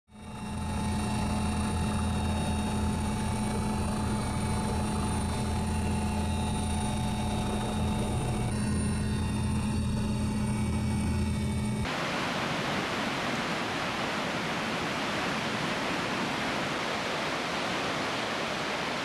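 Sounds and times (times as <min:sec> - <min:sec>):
helicopter engine and rotor drone: 0:00.1 - 0:11.9.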